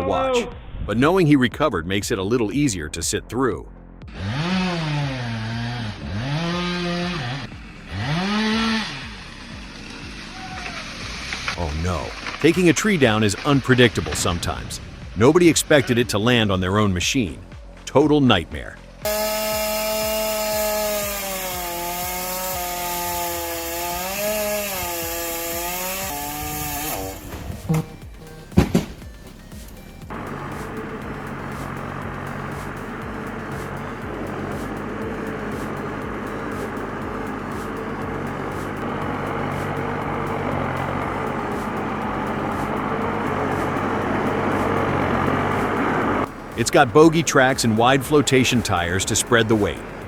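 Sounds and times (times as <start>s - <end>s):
chainsaw revving: 4.1s - 14.3s, 19.0s - 29.0s, 30.1s - 50.0s.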